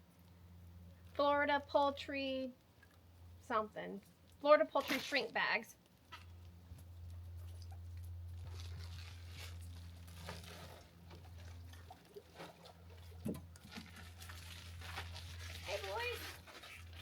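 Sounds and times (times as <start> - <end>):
steady low hum: 0.0 - 15.7
plastic bags crinkling: 8.4 - 12.5, 13.6 - 17.0.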